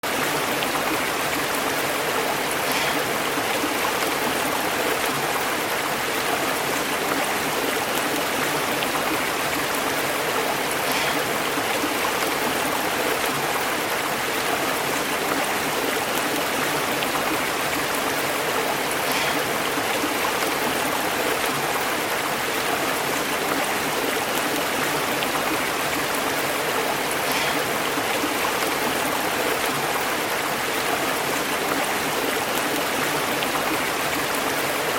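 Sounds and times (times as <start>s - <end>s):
stream bubbling over rocks: 0.0s - 34.9s.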